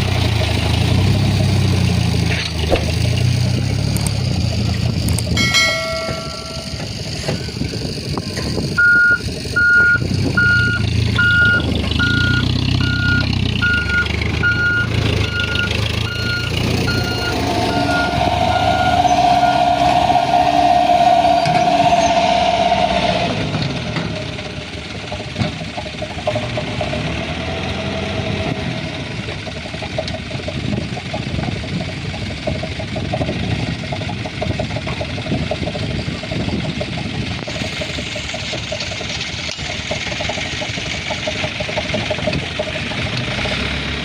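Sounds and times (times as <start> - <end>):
diesel truck engine running: 0.0 - 44.0
steady whine: 4.0 - 8.6, 14.5 - 25.2
reversing alarm beeping: 5.4 - 7.5, 8.8 - 23.8.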